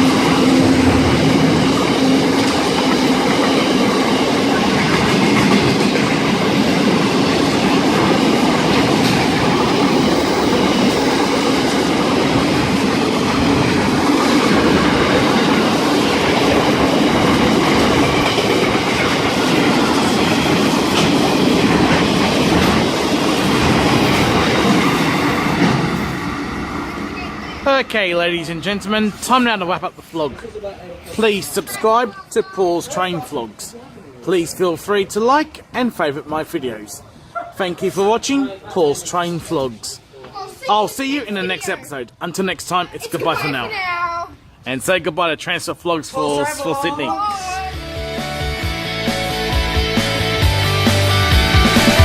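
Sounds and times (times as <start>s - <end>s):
wheels clicking over rail joints: 0.0s - 26.0s
freight train rolling past: 0.0s - 40.0s, 44.4s - 52.0s.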